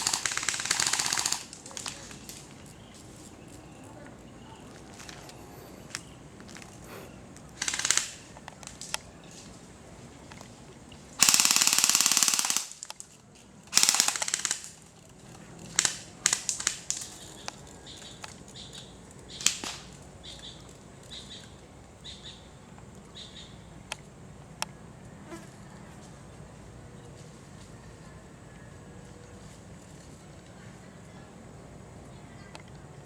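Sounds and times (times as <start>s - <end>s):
airsoft guns firing: 0.0s - 2.5s, 6.8s - 8.4s, 11.2s - 12.9s, 13.7s - 14.8s, 15.7s - 17.2s.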